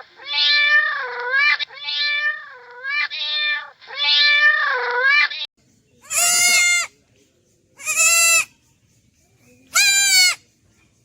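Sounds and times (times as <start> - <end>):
cat meowing: 0.2 - 6.9.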